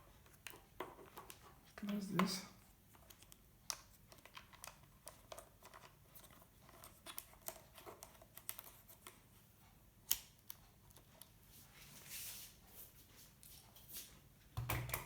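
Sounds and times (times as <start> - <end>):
small clicks and taps: 0.2 - 9.3.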